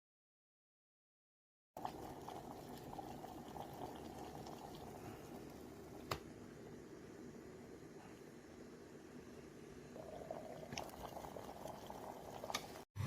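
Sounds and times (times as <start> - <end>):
water bubbling in kettle: 1.8 - 6.0, 9.9 - 12.9.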